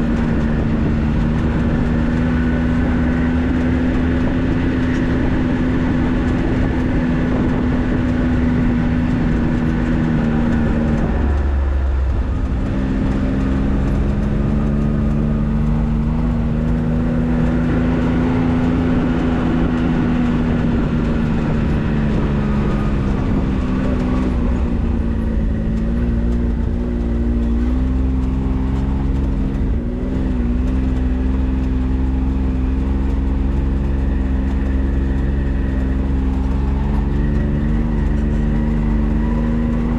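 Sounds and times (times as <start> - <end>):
low road rumble: 0.0 - 39.9
vehicle engine running: 0.0 - 39.9.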